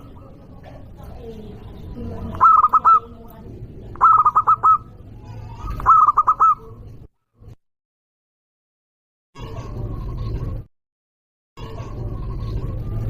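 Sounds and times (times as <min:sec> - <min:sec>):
dove cooing: 0:02.2 - 0:03.2, 0:04.0 - 0:06.8.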